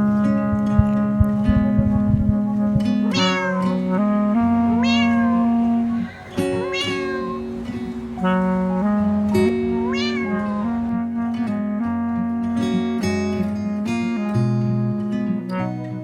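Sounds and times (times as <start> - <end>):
music with long held notes: 0.0 - 16.0
cat meowing: 3.1 - 3.9, 4.8 - 8.0, 9.6 - 10.9.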